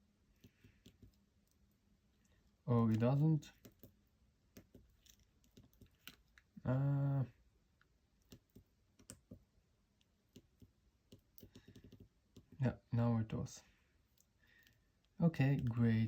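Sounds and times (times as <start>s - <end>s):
person humming: 6.6s - 7.4s.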